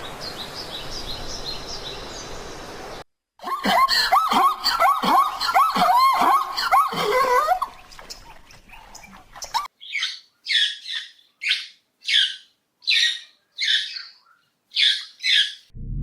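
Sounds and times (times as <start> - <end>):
bird squawking: 9.8 - 15.7.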